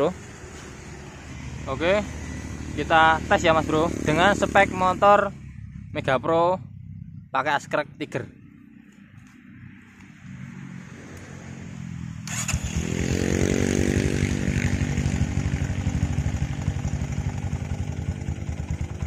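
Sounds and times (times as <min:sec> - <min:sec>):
motorcycle engine starting and idling: 0:11.2 - 0:19.0.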